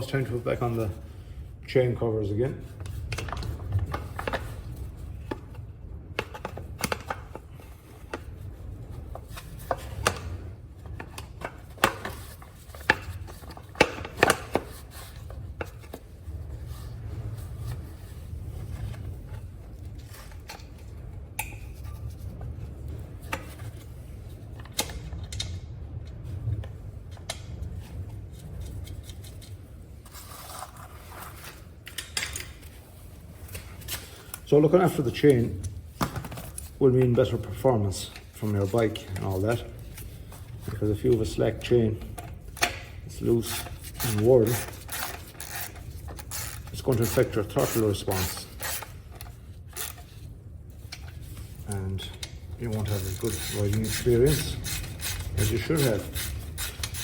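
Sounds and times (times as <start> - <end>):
steady low hum: 0.0 - 57.0
rubbing and scraping: 2.4 - 24.6, 26.4 - 31.8, 32.6 - 57.0
tools and parts clicking and tapping: 31.2 - 32.8, 42.0 - 50.2, 52.0 - 57.0.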